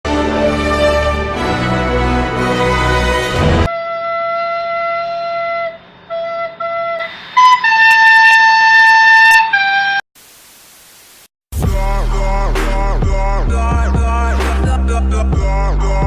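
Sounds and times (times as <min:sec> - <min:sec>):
flute-like slow melody: 0:03.7 - 0:10.0.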